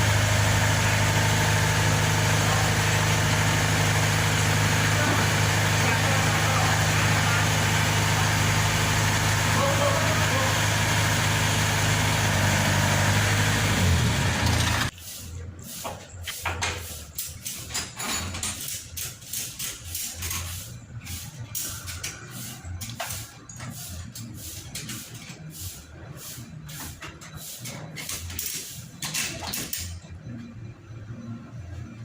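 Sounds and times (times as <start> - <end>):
harvester engine running loudly: 0.0 - 14.9.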